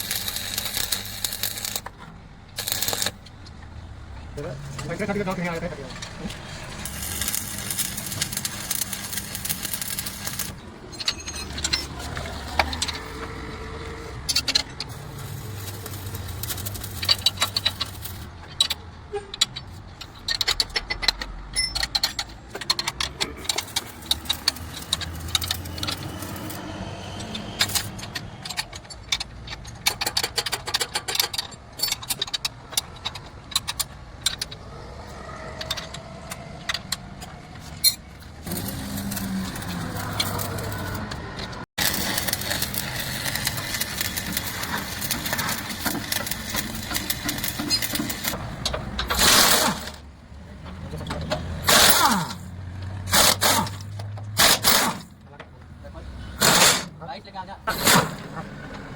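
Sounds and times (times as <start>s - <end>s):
metallic clinks of tools: 8.1s - 13.0s, 20.3s - 26.6s.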